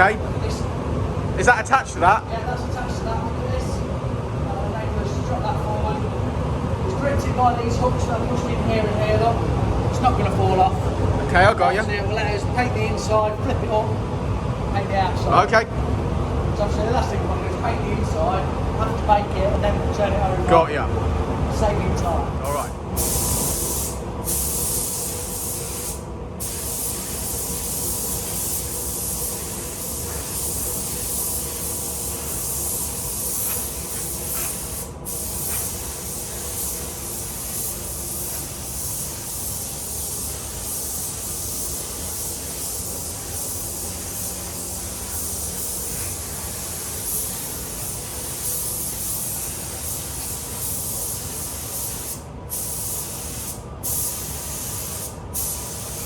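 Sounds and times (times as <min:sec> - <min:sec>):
paint spray gun hissing: 0:22.5 - 0:56.0.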